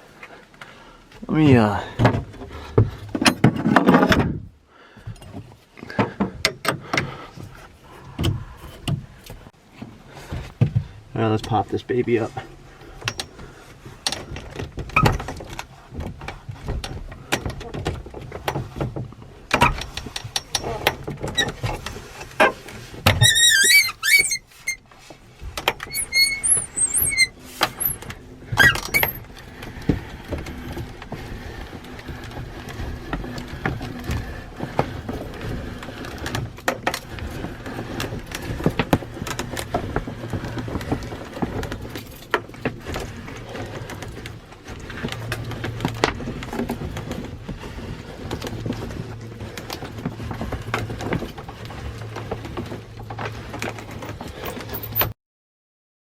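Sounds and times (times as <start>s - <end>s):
knocks clacks and rattles: 12.4s - 55.2s
high squeaks from roof mechanism: 19.6s - 24.9s, 25.6s - 36.3s.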